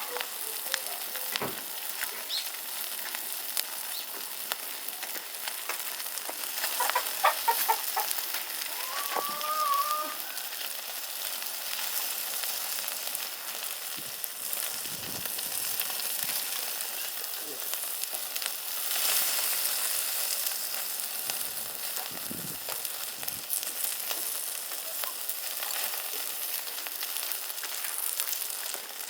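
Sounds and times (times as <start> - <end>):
meat sizzling over wood fire: 0.0 - 29.0
chicken clucking: 6.6 - 10.5.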